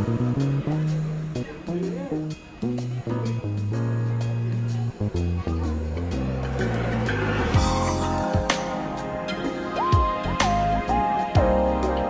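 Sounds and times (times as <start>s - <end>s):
gliding keyboard melody: 0.0s - 12.0s
low drum hits: 5.1s - 9.2s.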